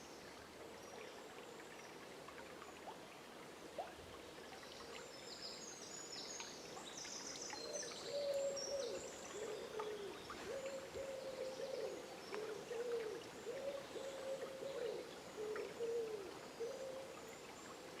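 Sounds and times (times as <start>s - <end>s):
bird hooting calls: 8.1s - 17.1s.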